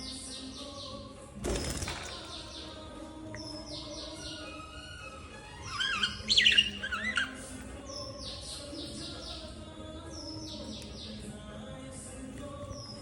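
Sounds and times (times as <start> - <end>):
bird warbling call: 5.6 - 7.5.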